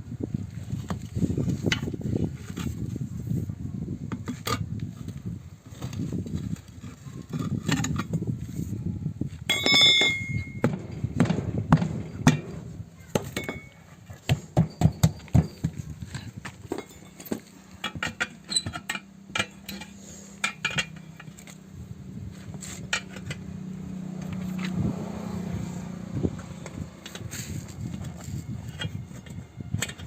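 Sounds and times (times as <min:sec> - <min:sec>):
hand tools knocking and clinking: 0:09.5 - 0:21.6, 0:22.6 - 0:23.5.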